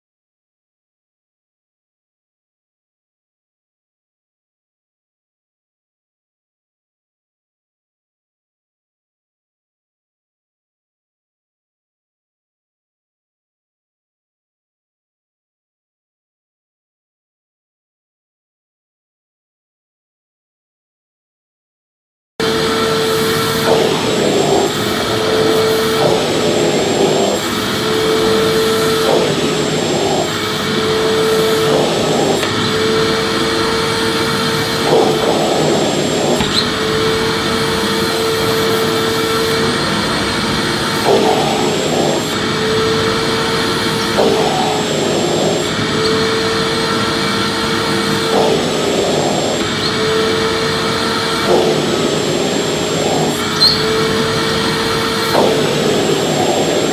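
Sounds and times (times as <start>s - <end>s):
vacuum cleaner motor running: 22.4s - 56.9s.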